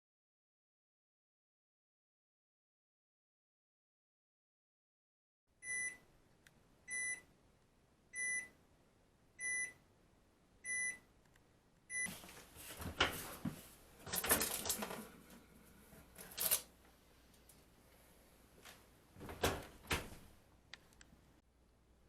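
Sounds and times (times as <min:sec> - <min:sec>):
rustling and clattering handling: 0:12.1 - 0:15.4, 0:16.0 - 0:16.7.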